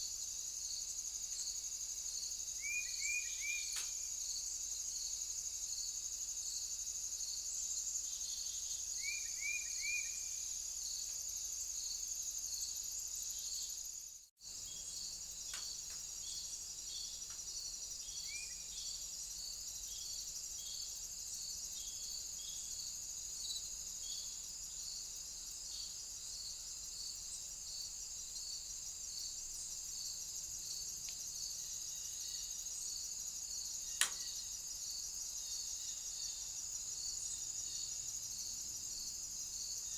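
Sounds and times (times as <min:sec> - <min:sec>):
insects chirping: 0:00.0 - 0:39.9
sharp click: 0:34.0 - 0:34.3.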